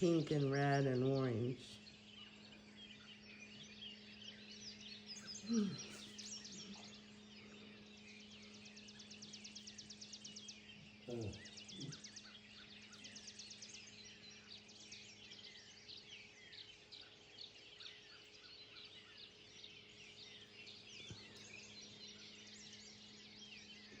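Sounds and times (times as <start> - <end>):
birds chirping and singing: 0.0 - 24.0
low steady hum: 0.0 - 24.0.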